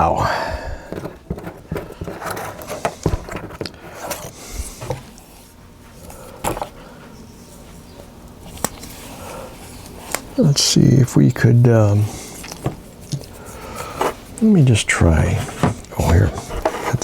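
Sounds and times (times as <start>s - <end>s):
faint rubbing: 15.2s - 17.0s.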